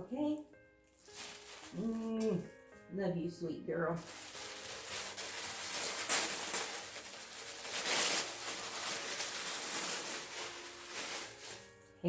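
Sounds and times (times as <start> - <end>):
wrapping paper rustling: 0.8 - 2.9, 3.9 - 12.0.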